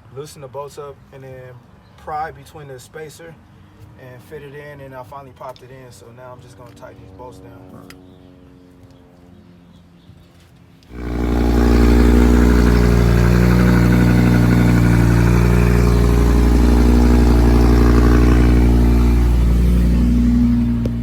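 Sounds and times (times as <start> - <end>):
loud engine running: 10.9 - 21.0.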